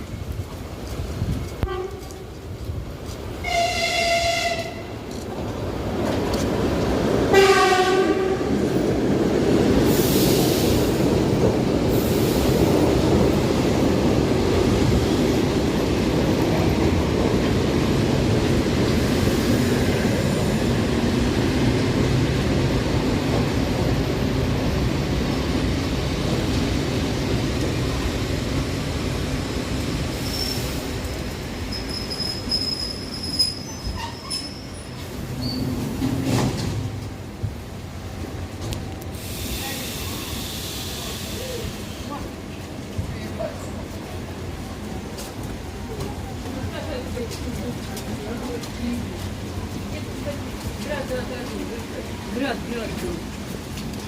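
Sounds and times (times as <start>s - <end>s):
train running noise: 0.0s - 54.0s
electric train horn: 1.6s - 2.2s, 3.4s - 4.9s, 7.3s - 8.5s.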